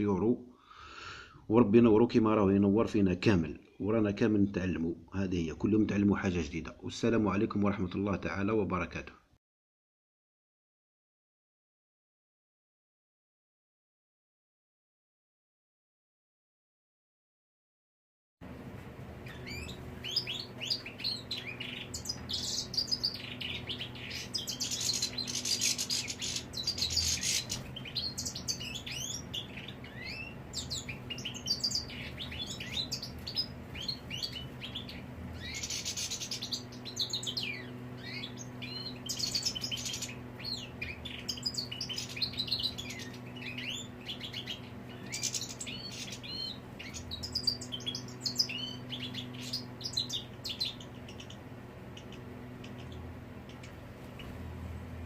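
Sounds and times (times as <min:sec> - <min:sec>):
low steady hum: 0:18.4 - 0:55.0
bird twittering song: 0:19.2 - 0:55.0.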